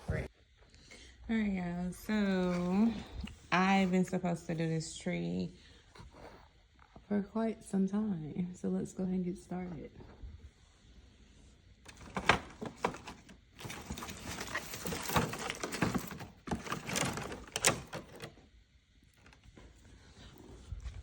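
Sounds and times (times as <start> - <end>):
artificial tree rustling and clattering: 11.9 - 18.4.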